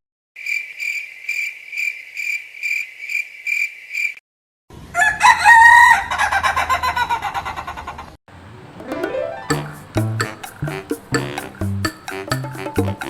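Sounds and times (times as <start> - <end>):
rooster crowing: 4.9 - 7.8.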